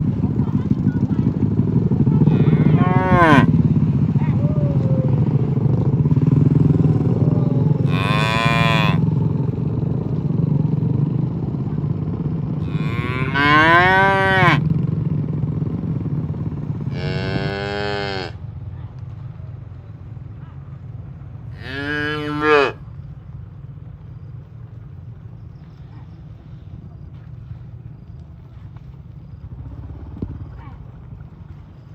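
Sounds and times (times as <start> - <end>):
low rumble: 0.0 - 21.7, 22.8 - 31.9
cattle mooing: 2.2 - 3.6, 6.8 - 9.1, 12.6 - 14.6, 16.9 - 18.4, 21.6 - 22.8.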